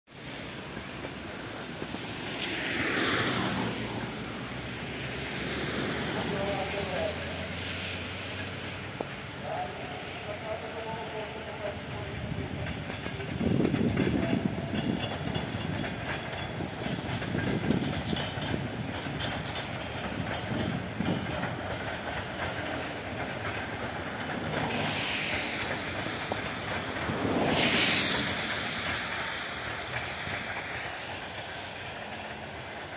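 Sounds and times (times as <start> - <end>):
train wheels clattering over rail joints: 0.2 - 32.9
loud hisses: 22.8 - 32.8.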